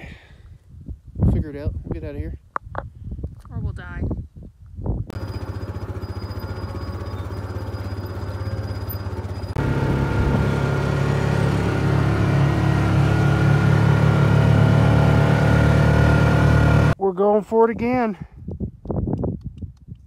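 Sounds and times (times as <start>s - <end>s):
vehicle engine running: 5.1s - 17.0s.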